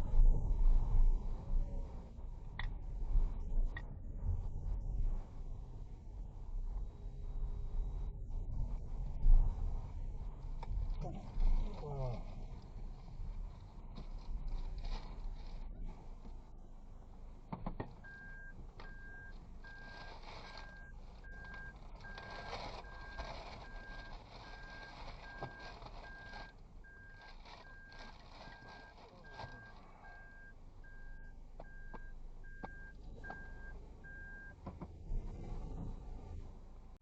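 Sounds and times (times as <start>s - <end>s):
low vehicle rumble: 0.0s - 37.0s
vehicle warning beeper: 18.0s - 34.6s.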